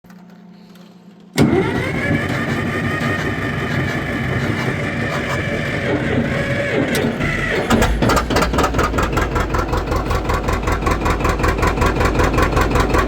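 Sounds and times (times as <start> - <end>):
diesel engine starting: 1.4 - 13.0.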